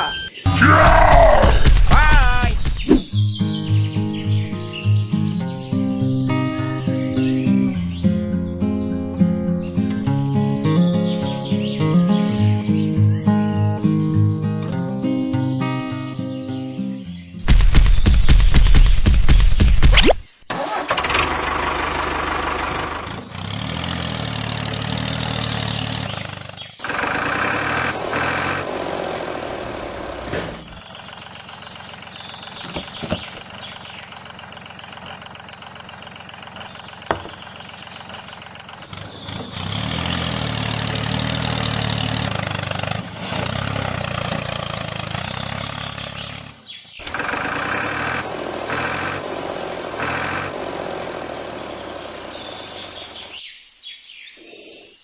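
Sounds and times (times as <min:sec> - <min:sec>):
engine running steadily: 0:20.6 - 0:53.4.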